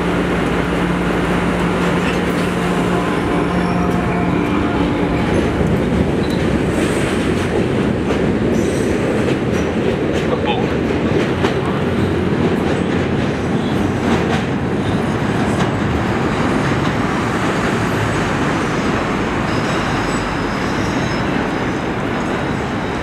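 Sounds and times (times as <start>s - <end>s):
train rolling rumble: 0.0s - 23.0s
faint high wheel squeal: 19.4s - 23.0s.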